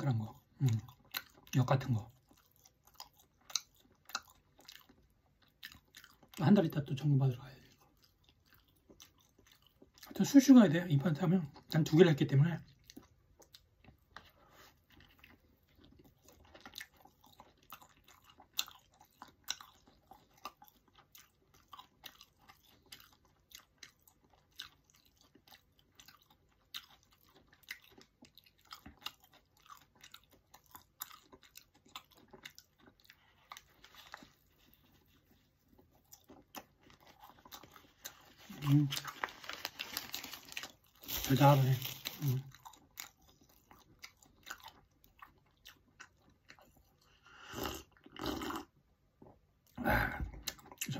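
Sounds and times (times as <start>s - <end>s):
person chewing crunchy bread: 0.0s - 50.9s.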